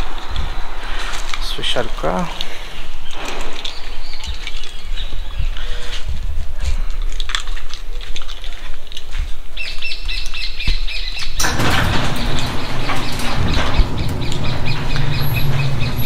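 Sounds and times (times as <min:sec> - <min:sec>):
birds chirping: 0:09.6 - 0:16.0
low rumble: 0:11.4 - 0:16.0
scattered clicks: 0:11.4 - 0:16.0.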